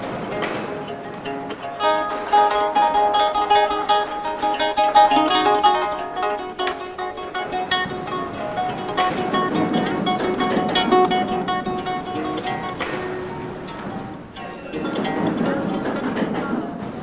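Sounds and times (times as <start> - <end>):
plucked string instrument: 0.0 - 17.0.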